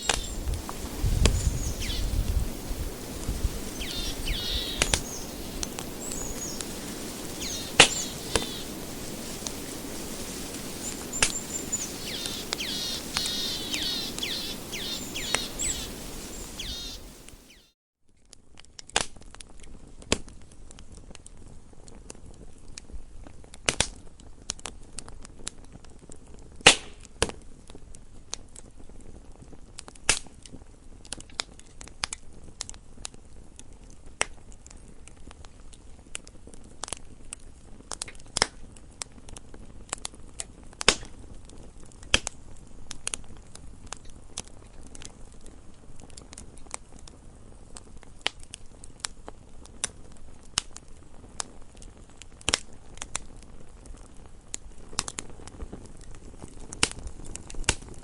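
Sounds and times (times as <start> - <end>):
wood fire crackling: 0.0 - 17.6, 31.0 - 58.0
low steady hiss: 0.0 - 17.7.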